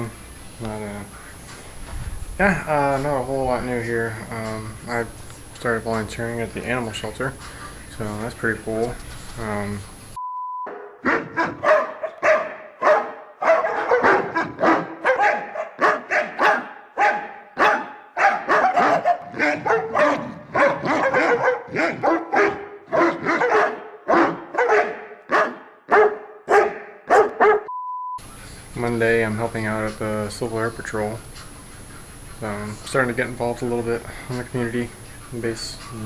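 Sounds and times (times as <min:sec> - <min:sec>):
short steady beep: 0:10.2 - 0:10.7, 0:27.7 - 0:28.2
dogs barking: 0:10.7 - 0:27.7.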